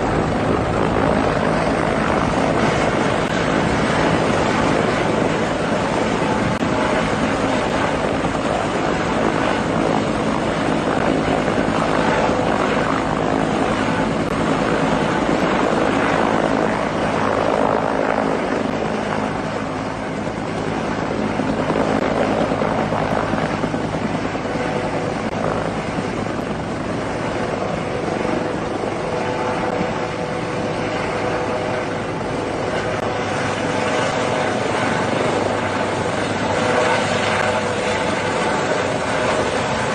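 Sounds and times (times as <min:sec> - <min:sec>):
helicopter rotor and engine roar: 0:00.0 - 0:39.9.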